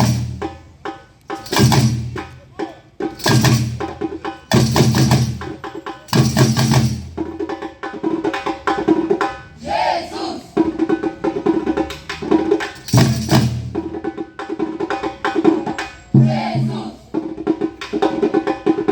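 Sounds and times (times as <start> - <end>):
loud drum hits: 0.0 - 0.6, 1.4 - 2.4, 3.2 - 7.2, 12.9 - 13.9
fast ticking percussion: 0.0 - 9.0, 11.1 - 15.4.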